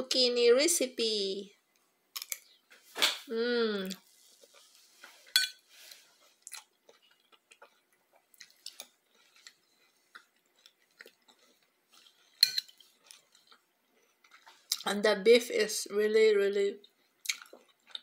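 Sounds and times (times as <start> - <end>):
chewing with mouth clicks: 5.9 - 14.9, 16.8 - 18.0
metal spoon scraping a plate: 12.4 - 12.7.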